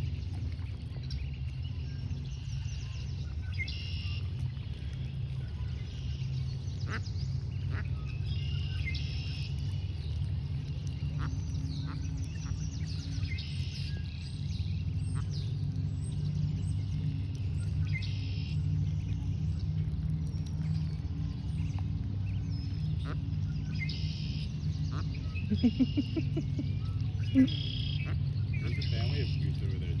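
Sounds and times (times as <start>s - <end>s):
low rumble: 0.0s - 30.0s
ducks quacking: 6.8s - 8.0s, 11.0s - 12.6s, 22.8s - 30.0s.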